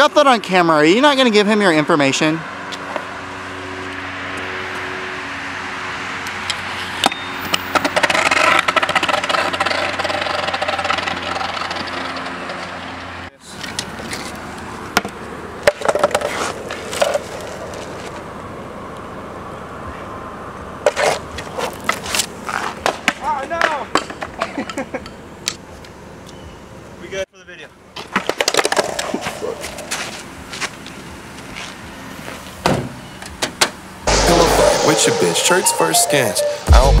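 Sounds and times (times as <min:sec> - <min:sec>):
shoes scuffing on concrete: 0:29.6 - 0:32.5
car engine humming: 0:33.8 - 0:37.0.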